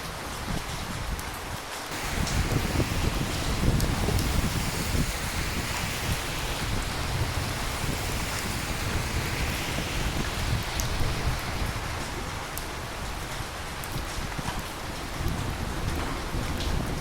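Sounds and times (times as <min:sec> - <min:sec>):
steady rain falling: 0:00.0 - 0:17.0
low rumble: 0:01.9 - 0:14.1.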